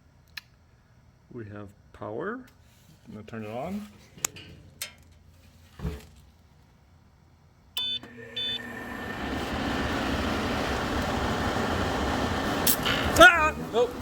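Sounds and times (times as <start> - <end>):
dehumidifier fan rushing air: 5.0 - 14.0
control panel beeps: 7.8 - 8.6.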